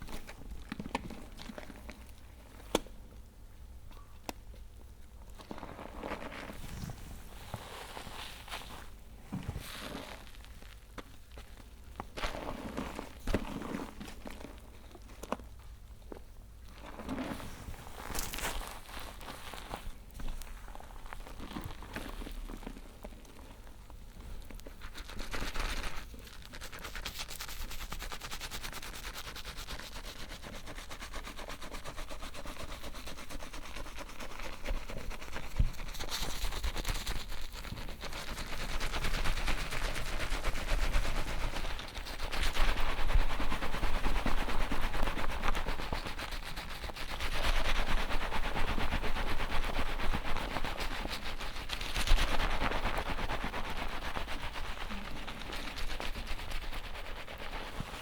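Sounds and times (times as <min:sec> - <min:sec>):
fingers scrubbing lathered hair: 0:24.8 - 0:58.0.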